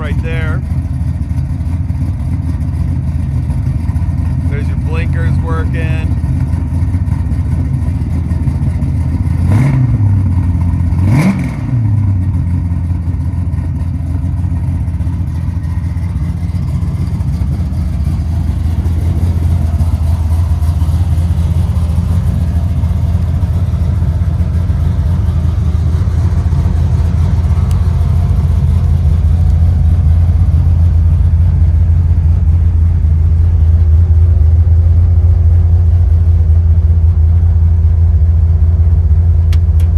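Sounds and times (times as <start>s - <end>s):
car engine revving: 0.0s - 0.8s, 3.4s - 34.4s
car engine idling: 0.0s - 39.9s.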